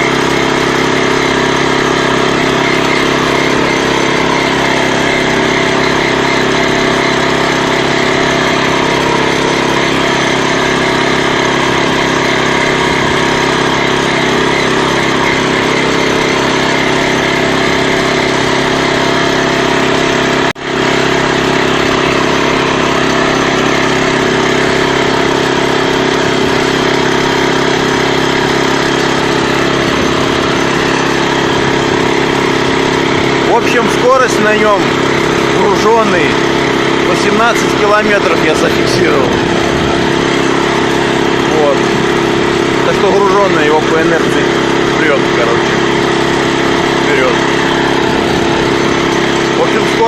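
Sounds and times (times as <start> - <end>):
tractor engine running: 0.0 - 50.0.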